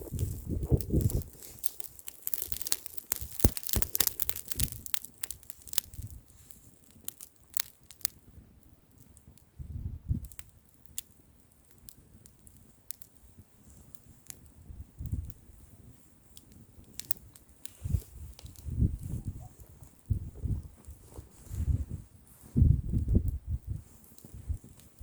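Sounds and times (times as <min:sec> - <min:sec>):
wind buffeting microphone: 0:00.0 - 0:01.4, 0:09.6 - 0:10.4, 0:14.6 - 0:15.9, 0:17.8 - 0:25.0
bonfire crackling and popping: 0:00.0 - 0:25.0.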